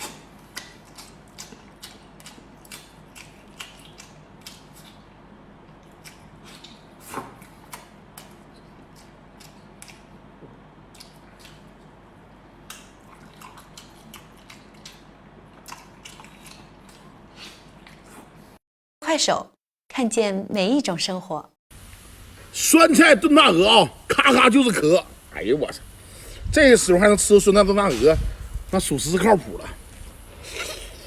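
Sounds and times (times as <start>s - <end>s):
wet mouth clicks and chewing: 0.0s - 10.2s, 10.9s - 12.0s, 12.6s - 18.2s
loud smack or slurp: 7.0s - 7.4s.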